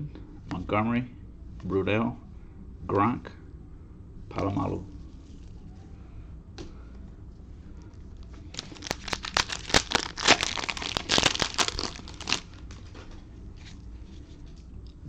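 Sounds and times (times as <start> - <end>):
cellophane wrapper crinkling: 8.5 - 12.8.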